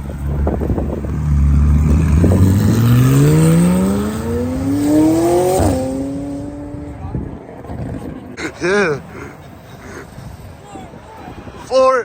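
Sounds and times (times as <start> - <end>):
car accelerating with loud exhaust: 0.0 - 8.3.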